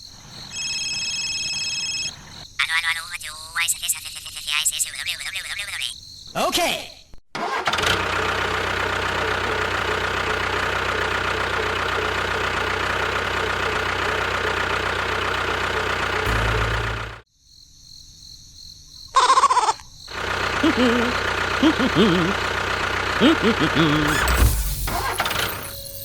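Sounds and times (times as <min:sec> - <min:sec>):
loud pitched cry: 0:19.2 - 0:19.8.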